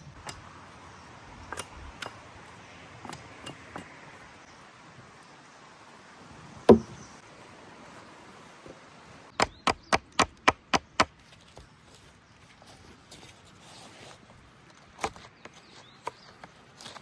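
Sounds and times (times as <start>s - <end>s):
sharp knocks on wood: 6.7s - 7.0s
wood being chopped: 6.7s - 7.0s, 9.4s - 11.2s.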